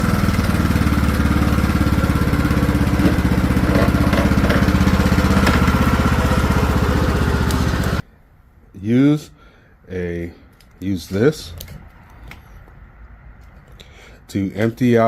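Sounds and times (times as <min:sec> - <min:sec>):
lawn tractor engine running: 0:00.0 - 0:08.0.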